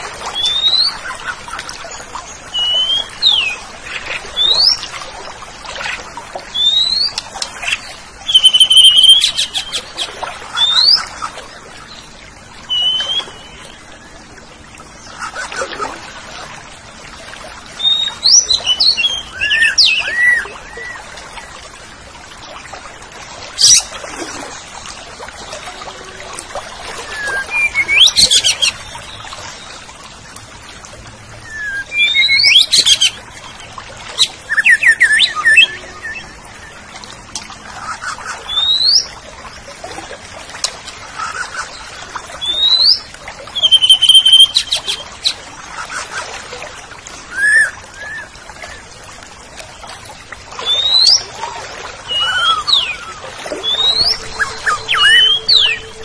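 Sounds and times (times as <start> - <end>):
bird whistles and chirps: 12.7 - 13.6, 31.4 - 33.2, 34.5 - 36.4, 43.6 - 45.0, 47.3 - 48.8, 50.6 - 51.2, 52.1 - 56.0.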